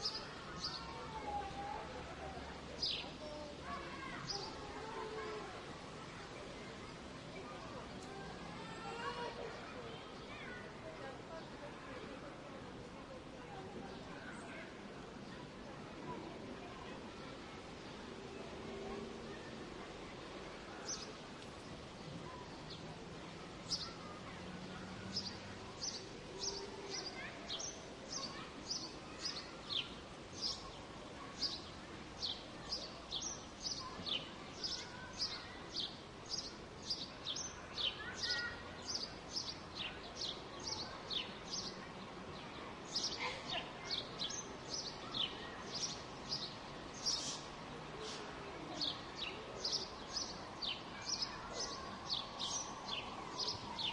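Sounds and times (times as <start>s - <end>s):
birds chirping: 48.8s - 53.9s.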